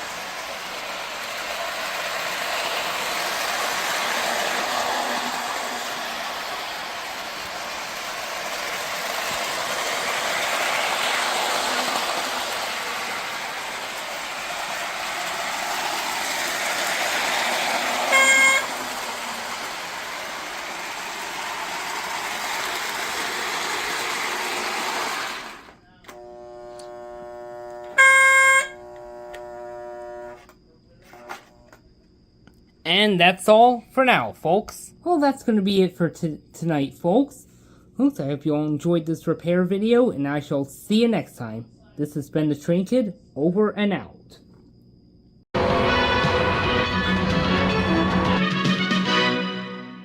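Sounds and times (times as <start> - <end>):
model locomotive whirring: 0.0 - 30.5
toy train horn blasts: 18.0 - 19.1, 26.2 - 30.4, 45.6 - 49.8.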